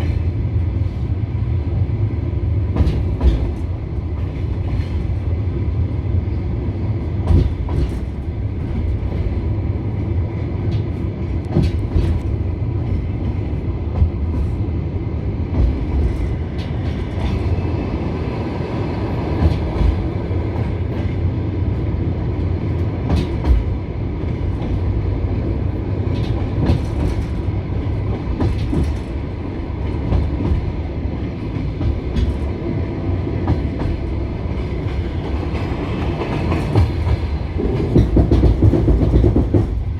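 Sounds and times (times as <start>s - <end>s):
train wheels rumbling: 0.0s - 39.9s
wheels clicking over rail joints: 34.6s - 39.9s.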